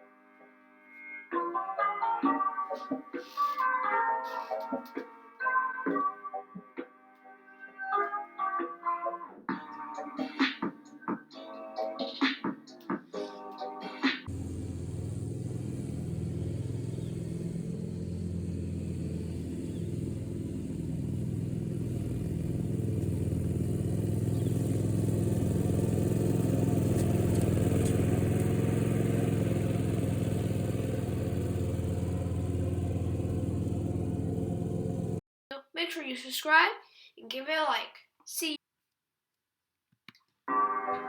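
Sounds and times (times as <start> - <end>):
lawn mower engine running: 14.3 - 35.2.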